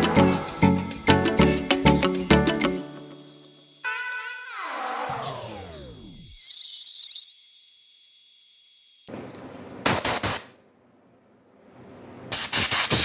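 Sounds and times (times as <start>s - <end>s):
sharp air blasts: 12.3s - 13.0s.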